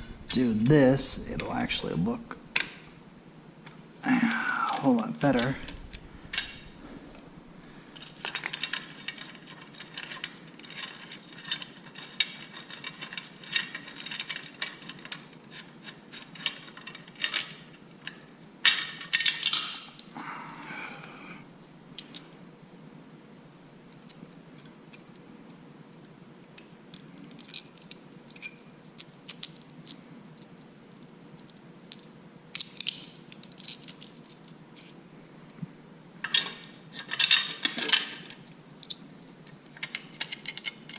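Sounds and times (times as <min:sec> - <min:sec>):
metal tools clinking and rattling: 0:08.0 - 0:20.2, 0:36.2 - 0:39.0, 0:39.7 - 0:40.9.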